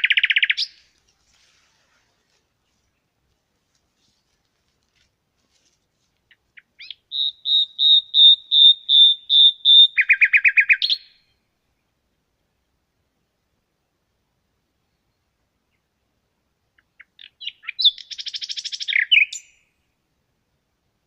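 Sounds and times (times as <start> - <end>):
songbird singing: 0.0 - 4.7, 6.1 - 12.6, 14.6 - 20.0.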